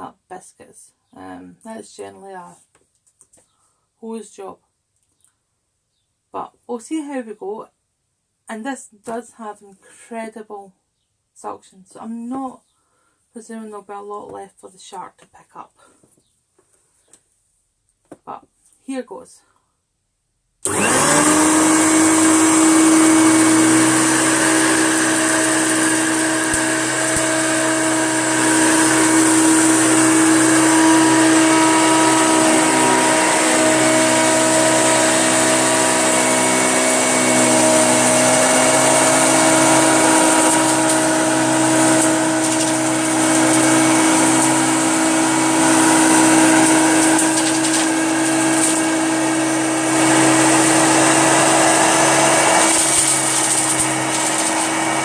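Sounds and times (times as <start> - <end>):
vacuum cleaner running on carpet: 20.6 - 55.0.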